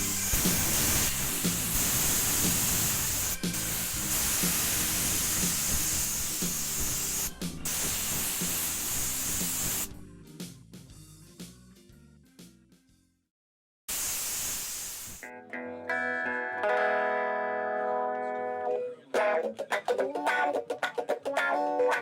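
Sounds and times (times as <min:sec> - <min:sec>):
pressurised spray hissing: 0:00.0 - 0:09.9, 0:13.9 - 0:15.2
background music: 0:00.0 - 0:13.1, 0:15.2 - 0:22.0.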